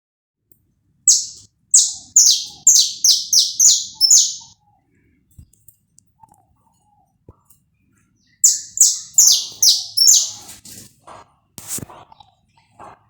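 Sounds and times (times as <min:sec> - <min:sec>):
finch singing harsh notes: 0:01.1 - 0:04.5, 0:08.4 - 0:10.5.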